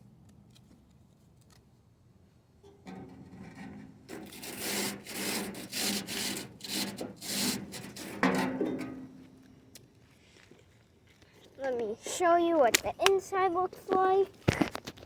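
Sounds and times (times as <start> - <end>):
sanding strokes: 4.1 - 8.2.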